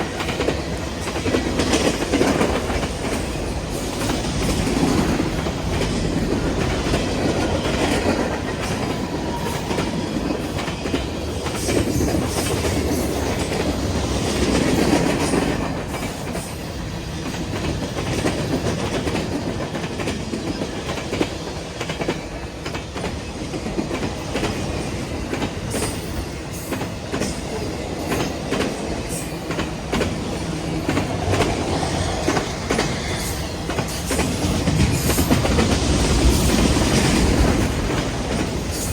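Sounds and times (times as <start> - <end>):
train cars rumbling past: 0.0 - 38.9.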